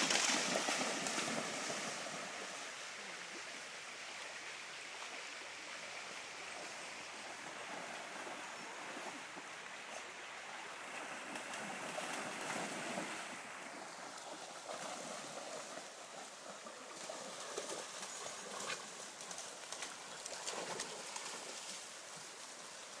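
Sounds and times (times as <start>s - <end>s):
dogs splashing in water: 0.0s - 2.3s
river water running: 0.0s - 23.0s.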